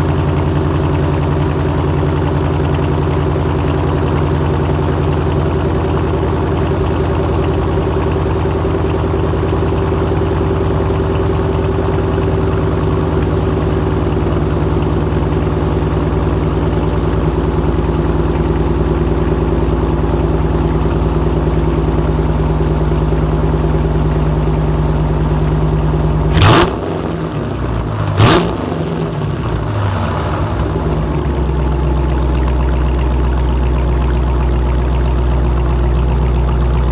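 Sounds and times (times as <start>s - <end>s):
car engine idling: 0.0s - 36.9s
engine revving: 26.3s - 31.1s.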